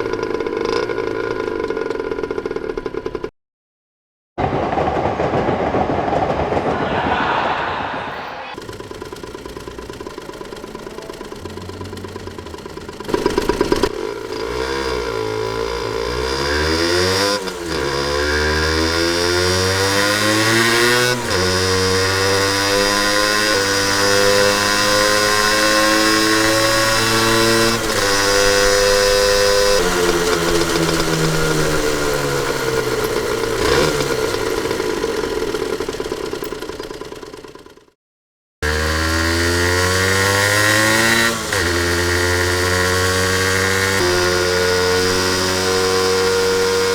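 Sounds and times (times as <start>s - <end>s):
motorcycle engine revving: 8.6s - 37.8s, 38.6s - 46.9s.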